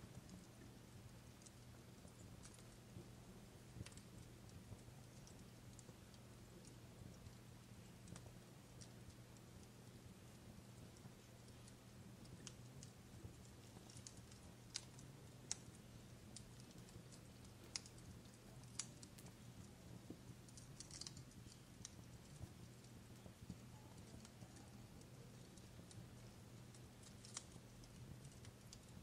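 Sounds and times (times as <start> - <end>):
fireplace crackling: 0.0 - 29.0
low steady hum: 0.0 - 29.0.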